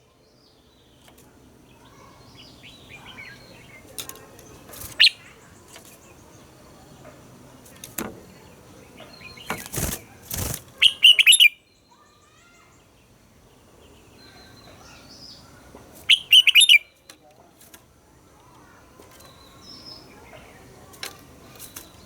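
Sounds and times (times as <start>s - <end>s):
bird singing rapid notes: 4.6s - 5.8s, 8.4s - 11.7s, 16.0s - 17.1s
rustling: 9.4s - 10.8s.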